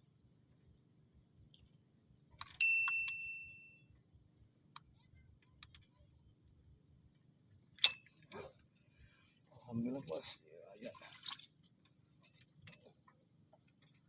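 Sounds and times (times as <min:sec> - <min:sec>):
small bell rattling and ringing: 0:02.5 - 0:03.8.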